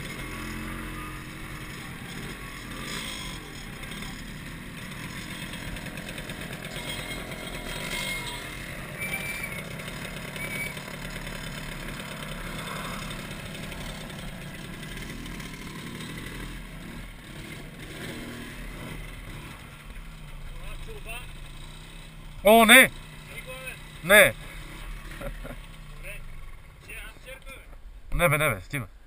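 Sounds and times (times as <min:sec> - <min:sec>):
motorcycle engine idling: 0:00.0 - 0:27.6
short high squeaks: 0:06.6 - 0:10.9.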